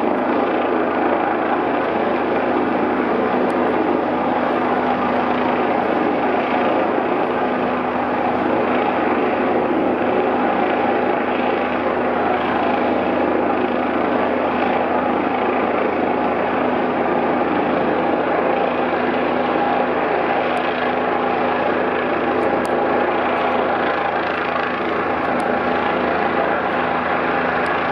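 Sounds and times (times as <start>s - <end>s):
helicopter flying overhead: 0.0s - 27.9s.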